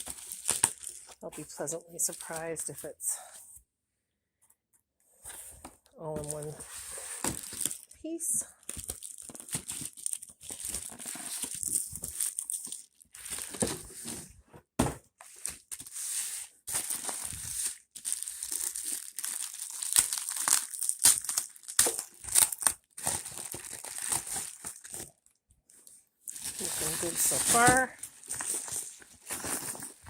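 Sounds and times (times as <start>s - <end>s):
packaging crinkling and rustling: 0.0s - 1.3s, 6.2s - 8.0s, 8.6s - 14.2s, 16.7s - 25.3s, 26.2s - 30.0s
packaging tearing: 18.0s - 25.1s.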